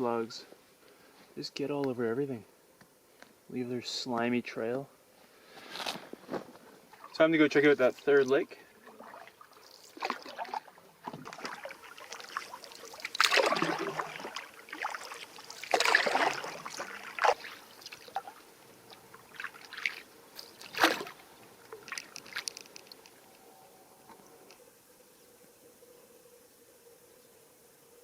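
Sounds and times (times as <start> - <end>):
paddle strokes splashing water: 8.8 - 22.9.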